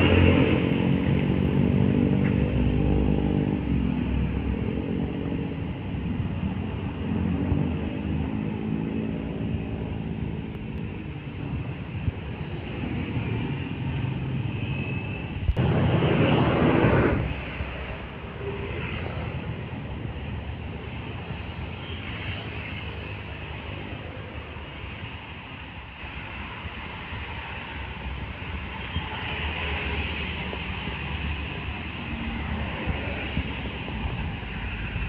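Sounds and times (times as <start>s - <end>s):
trucks passing: 0.0s - 35.0s
sudden rush of noise: 14.6s - 20.2s.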